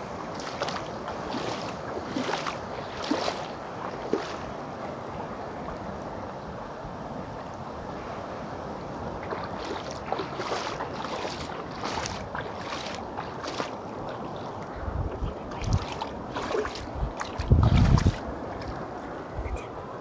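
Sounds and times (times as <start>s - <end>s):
wind buffeting microphone: 8.8s - 20.0s
waves splashing against rocks: 8.9s - 14.6s.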